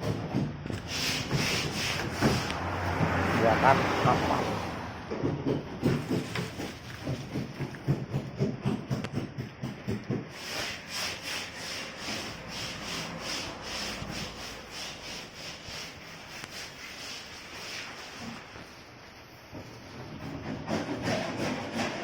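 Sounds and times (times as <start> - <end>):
hand sanding rubbing strokes: 0.7 - 4.8, 5.8 - 8.1, 10.3 - 19.0, 20.4 - 22.0.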